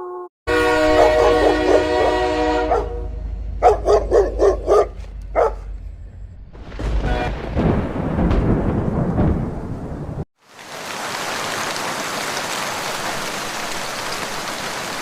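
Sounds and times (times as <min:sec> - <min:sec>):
low rumbling noise: 0:02.1 - 0:10.2
dog barking: 0:02.6 - 0:03.0, 0:03.6 - 0:05.7.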